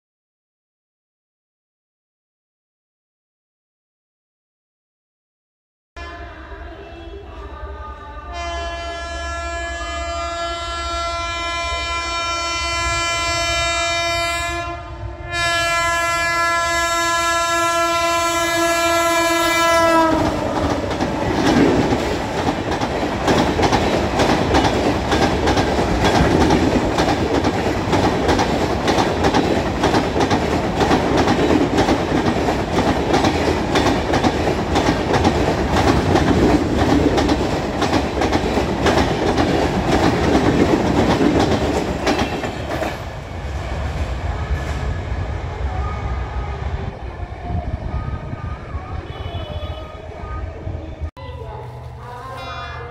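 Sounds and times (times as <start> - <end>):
locomotive horn blasts: 8.2 - 20.6, 48.0 - 50.4
wheels clattering on track: 20.2 - 43.2.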